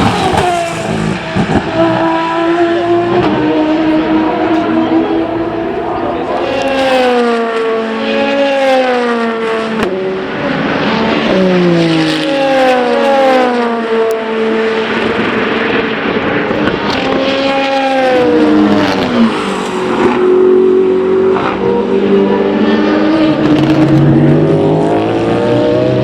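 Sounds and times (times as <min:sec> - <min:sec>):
steady engine note: 0:00.0 - 0:08.3
race cars passing at speed: 0:00.0 - 0:26.0.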